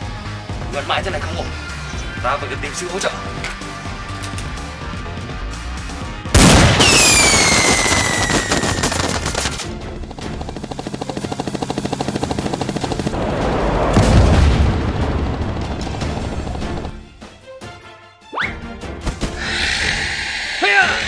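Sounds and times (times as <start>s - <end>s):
background music: 0.0s - 21.0s
loud blast with falling whine: 6.4s - 9.0s
automatic gunfire: 6.4s - 9.7s.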